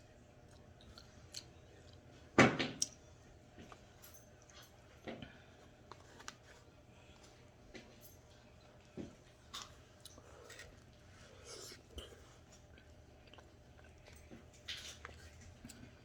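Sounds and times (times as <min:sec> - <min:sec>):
person chewing: 0:09.6 - 0:16.0.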